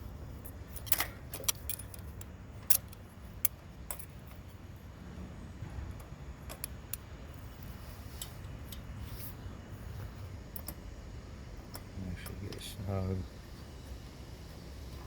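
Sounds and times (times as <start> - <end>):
low steady hum: 0.0 - 15.0
metallic clicks of hand tools: 0.7 - 4.4.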